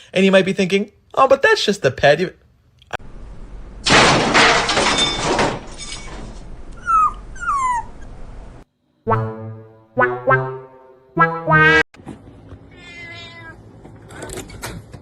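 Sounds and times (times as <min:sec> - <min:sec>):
dog whimpering: 0:06.8 - 0:08.2
cat meowing: 0:12.7 - 0:13.6.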